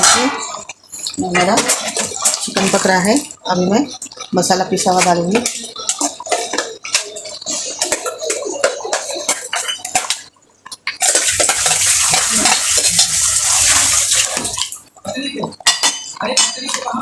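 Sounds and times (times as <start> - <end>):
metal spoon scraping a pan: 0.0 - 3.1, 4.8 - 10.2, 11.0 - 14.7.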